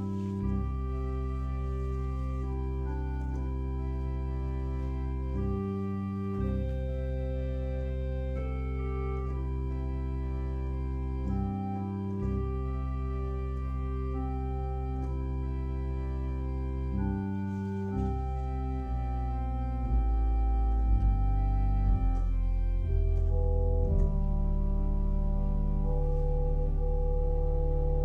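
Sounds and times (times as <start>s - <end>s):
organ playing slow chords: 0.0s - 28.0s.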